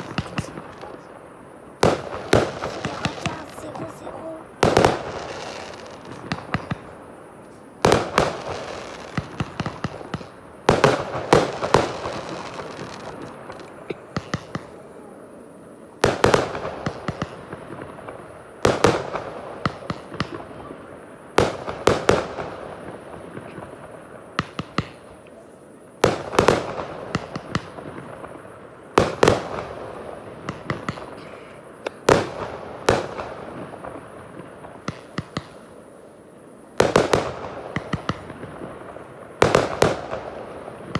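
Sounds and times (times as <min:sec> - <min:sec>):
firework shells bursting: 0:00.0 - 0:14.7
crackling firework sparks: 0:00.0 - 0:25.3, 0:25.9 - 0:40.9.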